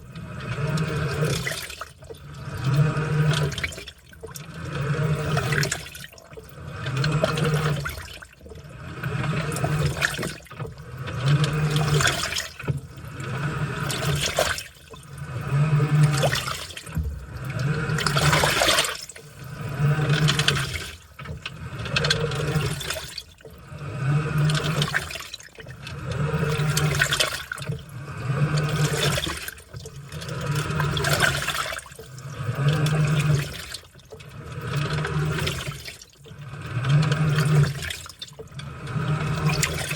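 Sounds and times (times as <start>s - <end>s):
washing machine motor hum: 0.0s - 39.9s
water sloshing: 0.0s - 39.9s.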